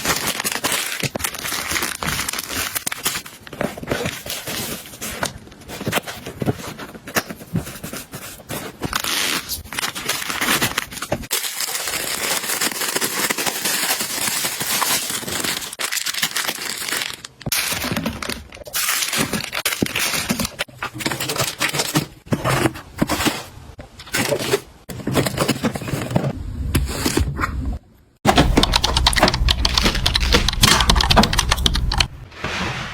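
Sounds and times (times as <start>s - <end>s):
packaging crinkling and tearing: 0.0s - 23.5s.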